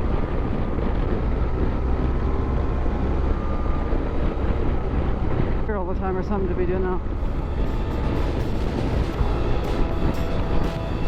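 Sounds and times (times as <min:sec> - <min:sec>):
road noise: 0:00.0 - 0:11.0
wind noise on microphone: 0:00.0 - 0:11.0
motorcycle engine running: 0:07.1 - 0:11.0.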